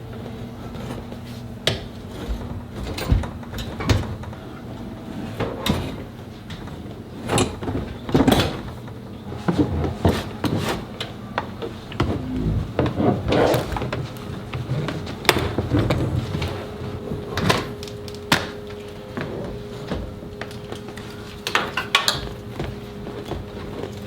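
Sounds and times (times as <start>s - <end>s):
hand tools clicking and knocking: 21.4s - 24.0s.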